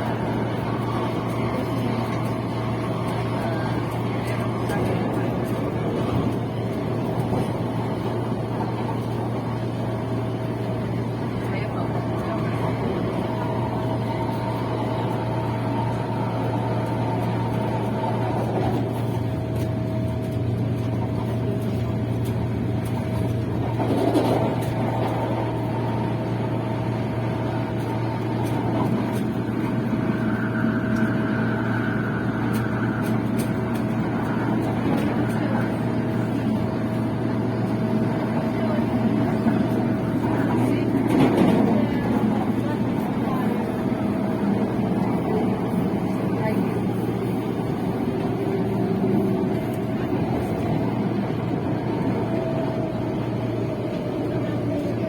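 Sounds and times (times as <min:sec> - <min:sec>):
constant hum: 0:00.0 - 0:55.0
passenger train rumbling: 0:00.0 - 0:55.0
steady whine: 0:27.6 - 0:55.0.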